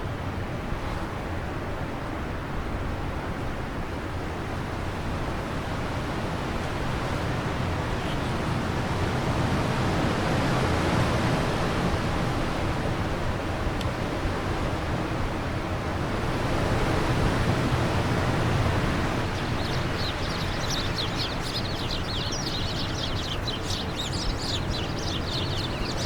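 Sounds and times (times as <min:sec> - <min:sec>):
wind blowing: 0:16.6 - 0:26.0.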